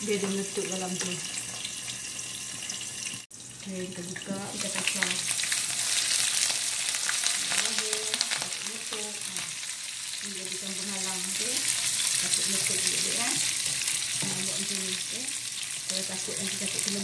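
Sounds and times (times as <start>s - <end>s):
food sizzling in hot oil: 0.0s - 17.0s
oil crackling and popping: 4.1s - 17.0s.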